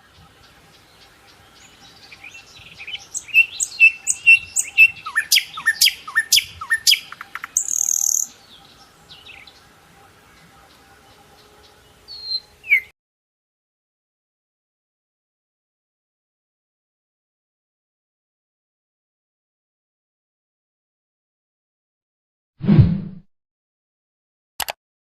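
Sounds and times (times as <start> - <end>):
songbird singing: 0.0 - 12.9.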